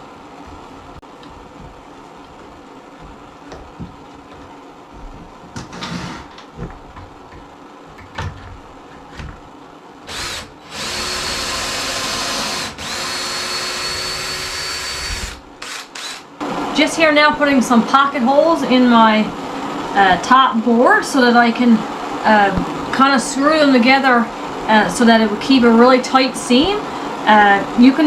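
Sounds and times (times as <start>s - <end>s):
power drill boring into wood: 10.1s - 16.2s.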